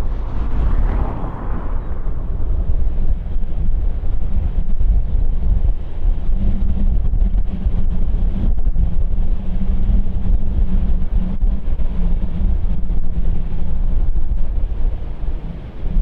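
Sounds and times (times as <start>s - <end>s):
jet engines rumbling: 0.0s - 6.3s
wind buffeting microphone: 0.0s - 16.0s.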